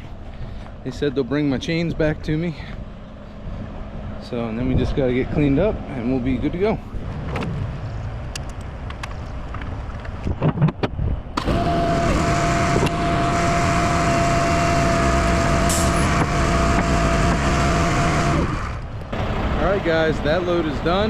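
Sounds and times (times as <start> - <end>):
truck engine idling: 11.4 - 21.0.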